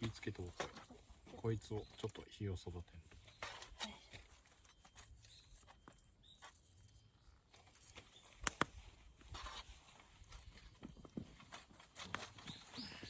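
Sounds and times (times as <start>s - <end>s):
sharp wood cracks: 7.7s - 8.8s
campfire crackling: 8.4s - 8.7s.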